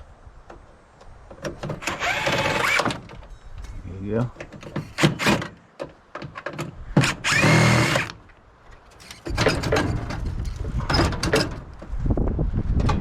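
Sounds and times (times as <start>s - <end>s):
cordless drill spinning: 1.9s - 2.8s, 7.1s - 8.1s.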